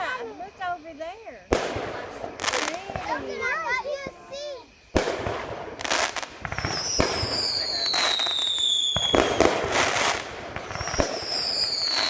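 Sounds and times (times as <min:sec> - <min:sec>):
fireworks crackling and popping: 0:00.0 - 0:12.0
firework whistle falling: 0:06.5 - 0:12.0.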